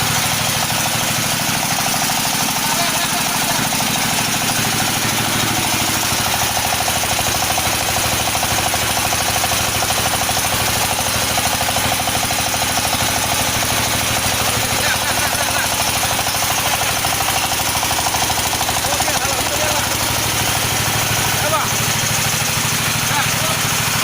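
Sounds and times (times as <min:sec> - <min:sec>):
pellet machine running: 0:00.0 - 0:24.0.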